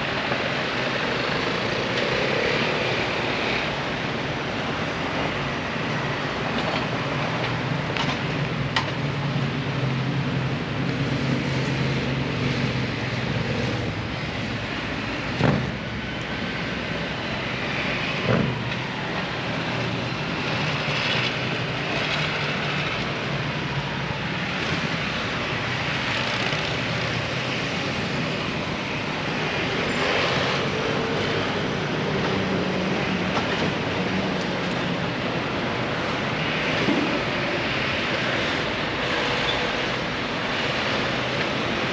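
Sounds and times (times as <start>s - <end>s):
traffic rumble: 0.0s - 41.9s.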